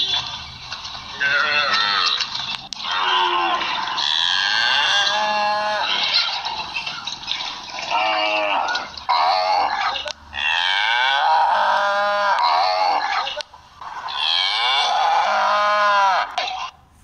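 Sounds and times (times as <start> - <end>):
cattle mooing through speaker: 3.4 - 5.9.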